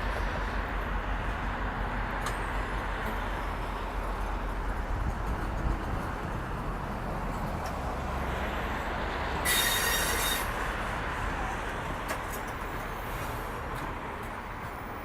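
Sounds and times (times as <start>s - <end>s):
train wheel rumble: 0.0s - 15.0s
high-pitched wheel squeal: 9.4s - 10.6s.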